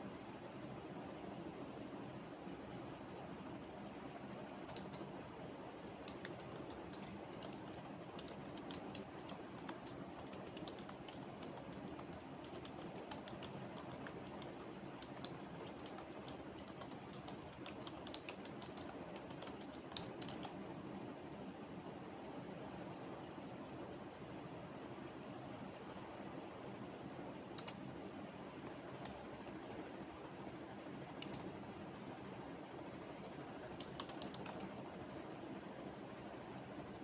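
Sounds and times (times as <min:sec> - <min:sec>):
low background hum: 0:00.0 - 0:37.0
computer keyboard typing: 0:04.6 - 0:05.1, 0:06.0 - 0:20.6, 0:27.6 - 0:27.8, 0:31.1 - 0:31.6, 0:33.1 - 0:35.2.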